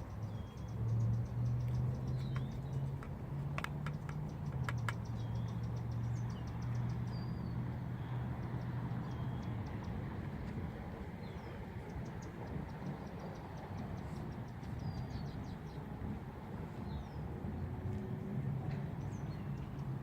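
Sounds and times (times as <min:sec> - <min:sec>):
sharp clicks: 0:01.6 - 0:05.5.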